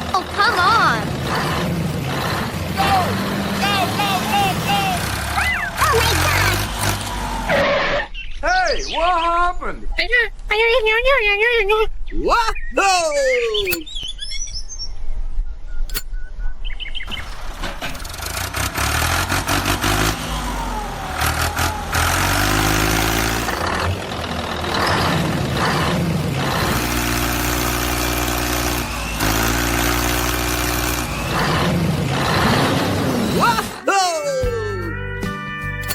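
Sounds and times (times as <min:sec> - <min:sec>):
engine starting and revving: 0:00.0 - 0:08.1, 0:17.1 - 0:33.8.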